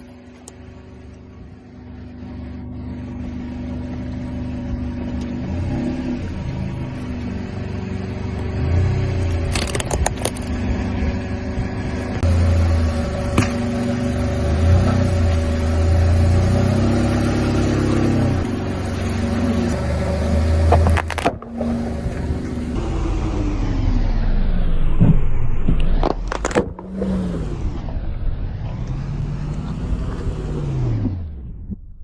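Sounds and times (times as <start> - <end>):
car engine running: 0.0 - 32.0
sharp cracks: 19.7 - 23.7, 24.8 - 29.7.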